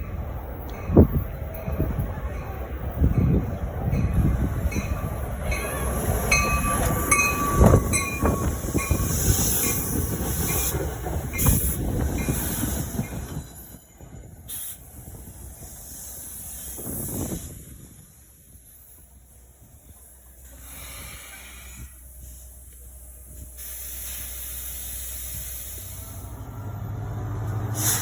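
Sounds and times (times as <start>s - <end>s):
passenger train rumbling past: 0.0s - 28.0s
train wheel squeal: 4.1s - 15.3s.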